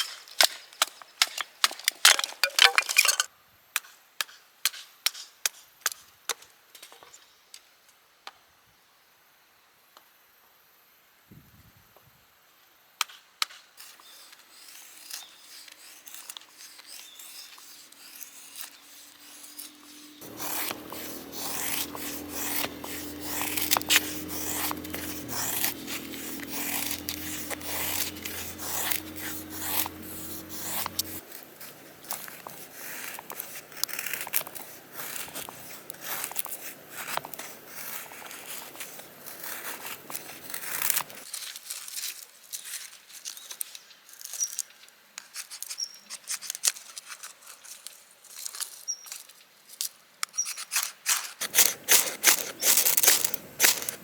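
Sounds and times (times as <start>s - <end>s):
scraping and rubbing of objects: 13.8s - 42.0s, 50.4s - 54.0s.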